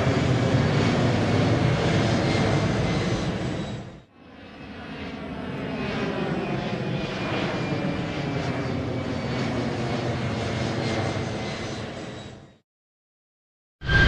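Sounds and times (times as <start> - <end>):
jet engines running: 0.0 - 12.6.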